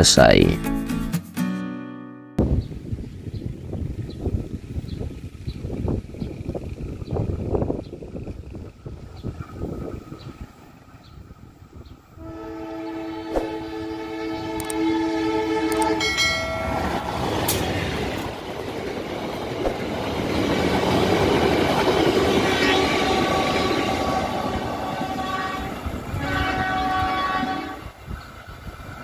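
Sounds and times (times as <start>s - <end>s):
train rumbling past: 2.4s - 29.0s
multi-tone train horn: 12.2s - 17.2s, 22.0s - 28.0s.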